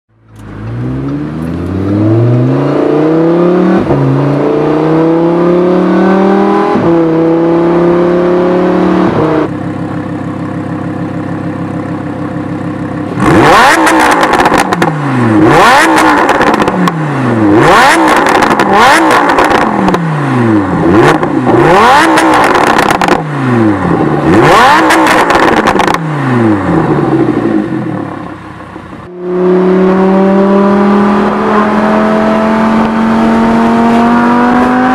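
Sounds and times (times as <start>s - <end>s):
sports car engine revving: 0.3s - 34.9s
engine accelerating through gears: 13.1s - 28.2s, 29.0s - 34.9s.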